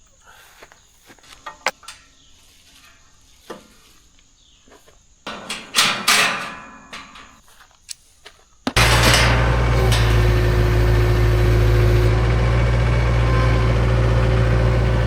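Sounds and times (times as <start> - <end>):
loud clattering and rustling: 4.7 - 7.5, 8.7 - 15.0
clicks and knocks: 5.3 - 7.4
tractor diesel engine running: 8.8 - 15.0.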